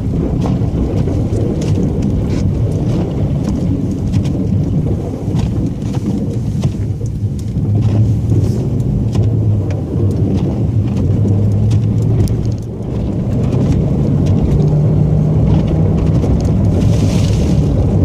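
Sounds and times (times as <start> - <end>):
truck engine hum: 6.3 - 18.0.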